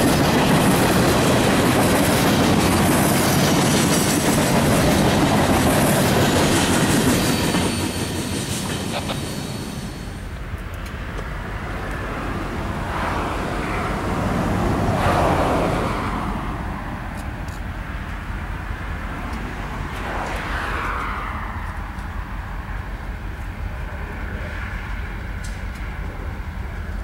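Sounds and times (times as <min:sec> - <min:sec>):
freight train rumbling: 0:00.0 - 0:27.0
vehicles passing: 0:00.0 - 0:27.0.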